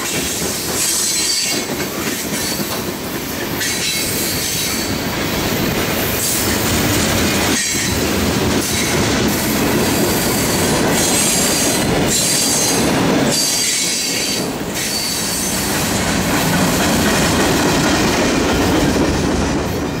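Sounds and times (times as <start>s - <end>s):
train wheels rumbling on rail: 0.0s - 20.0s
high-pitched wheel squeal: 13.3s - 15.6s.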